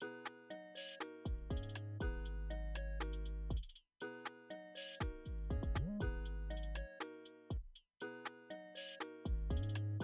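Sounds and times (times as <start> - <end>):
hip-hop beat: 1.3 - 3.8, 4.9 - 6.8.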